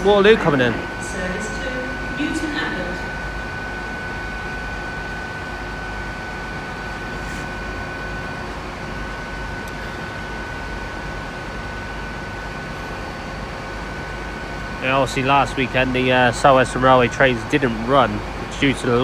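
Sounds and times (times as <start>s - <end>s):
diesel train engine rumble: 0.0s - 5.2s
steady high whine: 0.0s - 19.0s.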